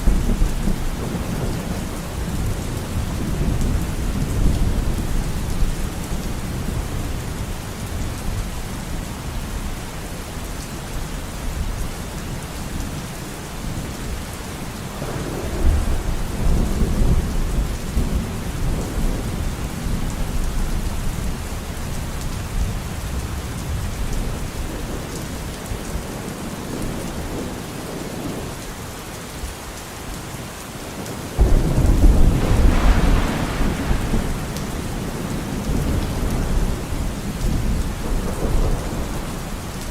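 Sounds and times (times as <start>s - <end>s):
thunder rolling: 15.0s - 19.6s, 31.4s - 39.9s
rain hissing: 30.9s - 39.9s.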